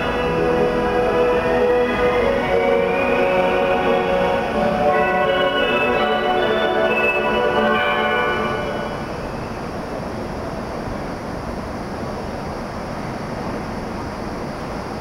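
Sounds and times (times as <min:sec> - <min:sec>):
platform departure melody: 0:00.0 - 0:09.9
train and station rumbling: 0:00.0 - 0:15.0.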